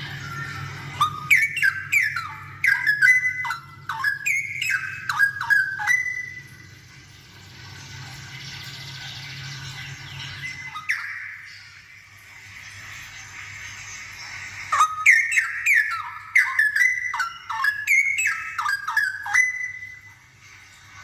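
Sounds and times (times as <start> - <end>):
bird singing whistled notes: 0.0 - 6.7, 9.8 - 11.9, 14.7 - 20.2.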